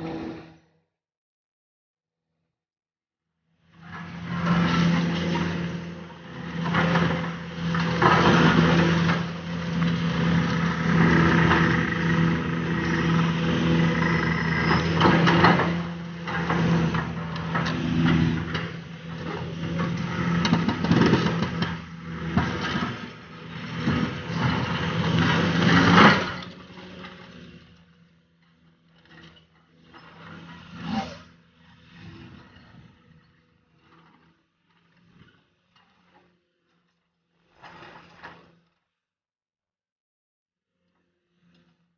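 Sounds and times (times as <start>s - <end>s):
heavy machine engine droning: 0.0s - 0.7s, 3.6s - 36.2s.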